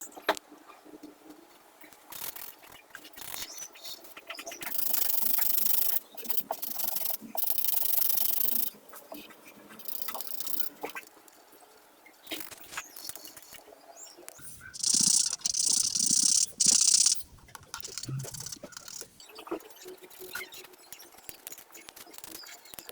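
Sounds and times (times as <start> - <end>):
small clicks and taps: 14.3 - 19.1
coloring tool scratching paper: 14.6 - 19.1.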